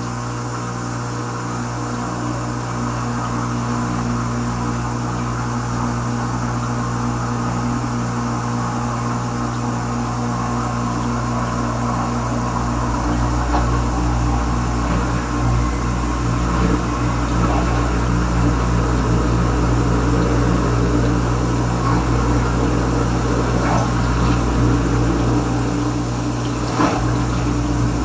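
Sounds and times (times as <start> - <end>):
dishwasher motor humming: 0.0 - 28.0
water spraying inside dishwasher: 7.8 - 28.0.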